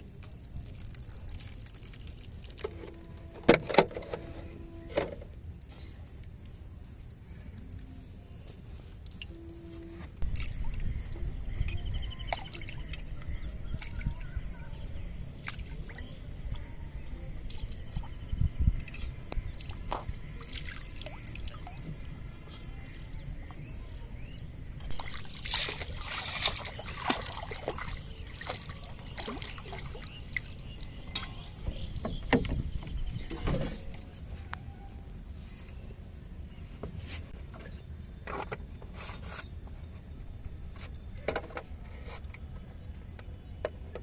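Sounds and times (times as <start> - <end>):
water splashing around boat: 24.9 - 34.0.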